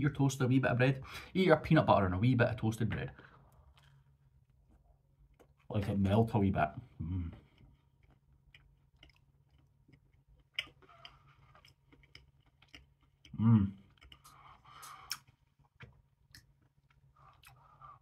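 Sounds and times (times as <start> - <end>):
chewing toast with crunches: 3.5 - 5.7, 7.4 - 18.0
person humming: 13.4 - 13.8.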